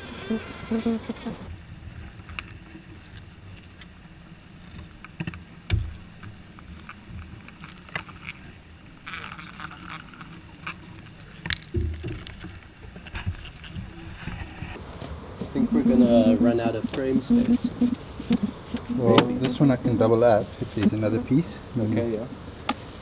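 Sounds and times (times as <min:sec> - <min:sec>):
dull thumps: 0:14.8 - 0:23.0
clicks and light knocks: 0:22.3 - 0:23.0.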